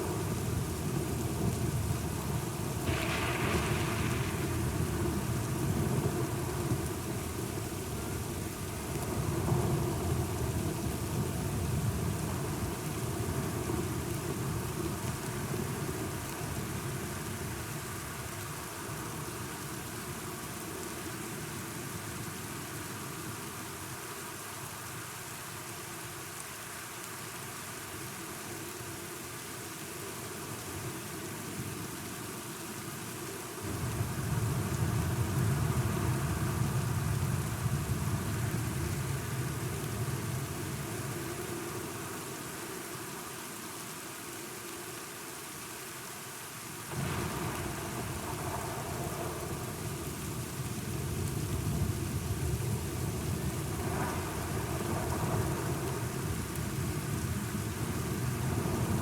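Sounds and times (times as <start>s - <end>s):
steady rain: 0.0s - 59.0s
thunder rumbling: 0.8s - 12.7s, 46.9s - 59.0s.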